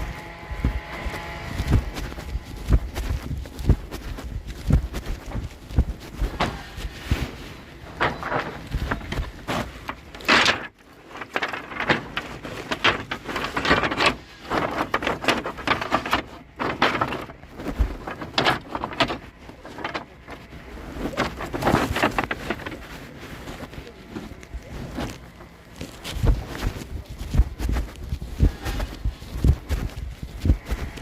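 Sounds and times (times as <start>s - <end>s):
rustling: 0.0s - 31.0s
wooden pieces knocking together: 7.9s - 20.5s.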